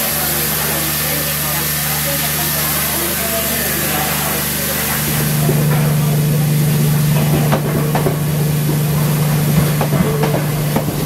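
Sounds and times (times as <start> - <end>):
electric train hum: 0.0 - 11.0
train wheels clicking over rail joints: 7.1 - 11.0.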